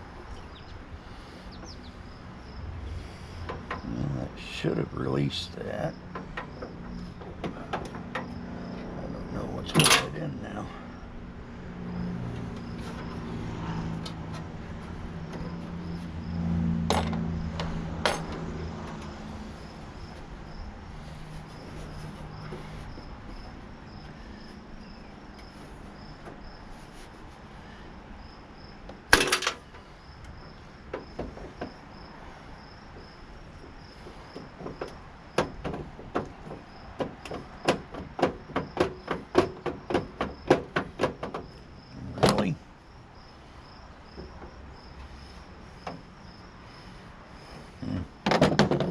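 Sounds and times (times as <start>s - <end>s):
crickets chirping: 0.0s - 48.9s
hand tools knocking on metal: 34.0s - 41.5s.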